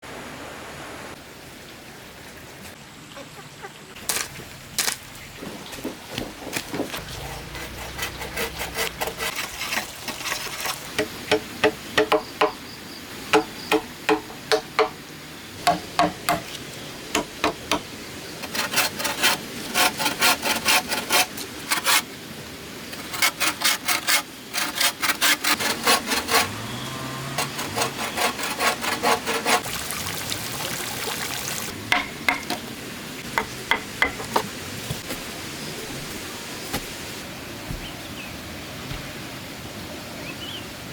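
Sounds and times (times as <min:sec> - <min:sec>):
tool knocking on bamboo: 0:11.0 - 0:12.6, 0:13.3 - 0:15.0, 0:15.6 - 0:16.5, 0:31.9 - 0:32.6, 0:33.4 - 0:35.2.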